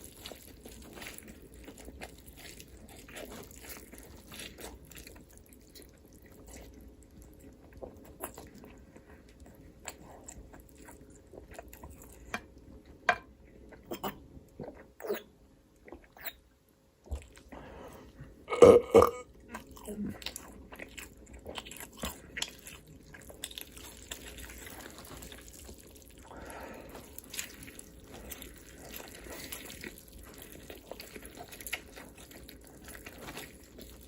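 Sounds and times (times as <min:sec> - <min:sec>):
crunchy chewing: 0:00.0 - 0:12.3, 0:19.5 - 0:34.0.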